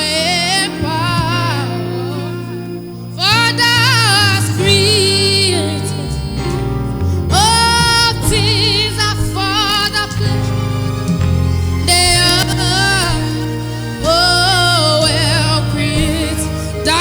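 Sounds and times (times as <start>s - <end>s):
woman singing with vibrato: 0.0s - 11.0s, 11.8s - 17.0s
sustained keyboard chords: 0.0s - 17.0s.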